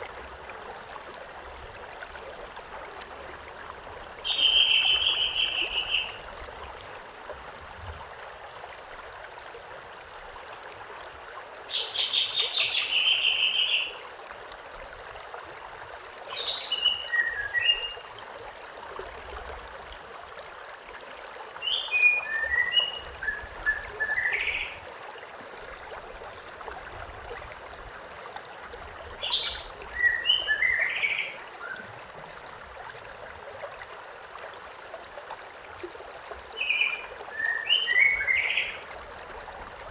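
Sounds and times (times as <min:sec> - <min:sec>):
stream water running: 0:00.0 - 0:39.9
songbird singing: 0:04.2 - 0:06.2, 0:11.7 - 0:14.0, 0:16.3 - 0:18.1, 0:21.6 - 0:24.8, 0:29.2 - 0:31.9, 0:36.6 - 0:38.8.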